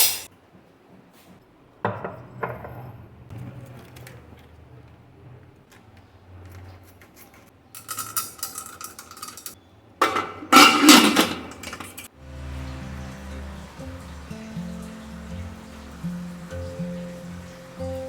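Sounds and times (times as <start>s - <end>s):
dishes and utensils clinking: 7.2s - 12.1s
soft background music: 12.1s - 18.0s.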